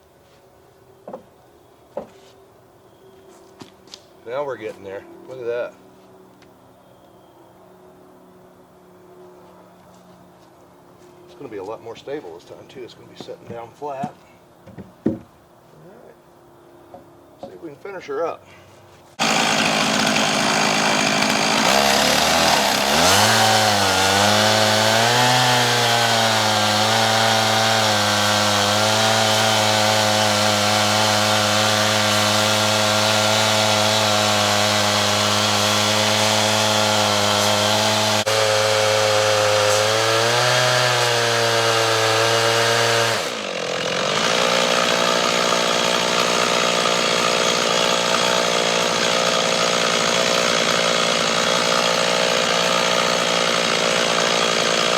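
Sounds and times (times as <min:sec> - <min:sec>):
chainsaw cutting log: 0:19.2 - 0:54.9.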